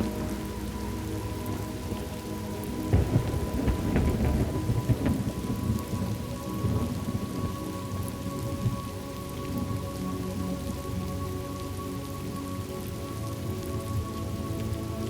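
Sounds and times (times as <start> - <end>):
faint drone of held tones: 0.0 - 15.0
rain falling on a surface: 0.0 - 15.0
thunderclap rolling into rumble: 2.9 - 7.3.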